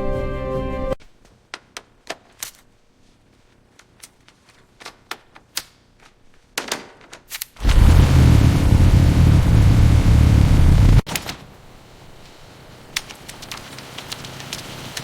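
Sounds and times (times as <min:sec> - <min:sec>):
background music: 0:00.0 - 0:01.0.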